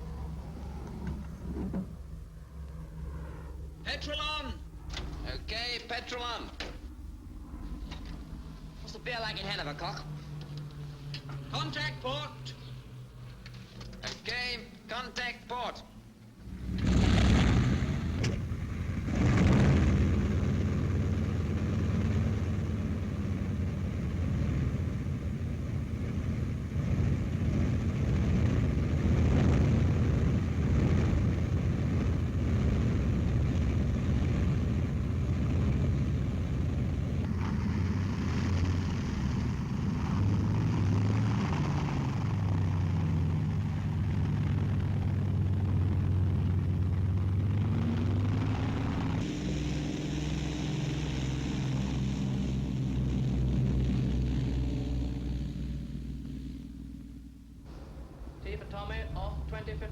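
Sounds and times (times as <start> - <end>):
propeller engines droning: 0.0 - 59.9.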